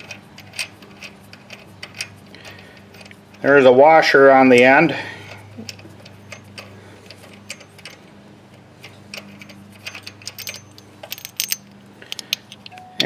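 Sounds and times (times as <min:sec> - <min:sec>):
metal tools clicking and clinking: 0:00.0 - 0:03.5, 0:05.3 - 0:08.0, 0:08.8 - 0:13.0
faint steady hum: 0:00.0 - 0:13.0.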